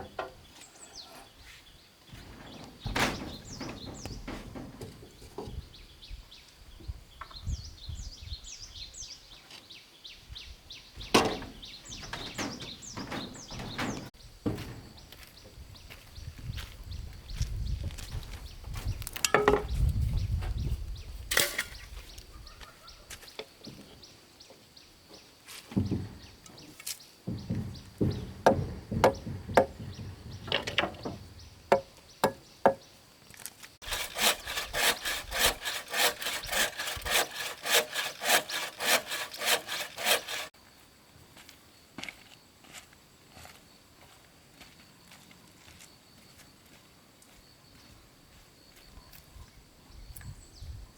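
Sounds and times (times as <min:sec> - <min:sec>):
knocks and scraping on wood: 0:02.1 - 0:05.9, 0:11.0 - 0:15.5, 0:18.0 - 0:20.7, 0:25.1 - 0:32.9, 0:33.8 - 0:40.5
hand saw sawing strokes: 0:33.8 - 0:40.5.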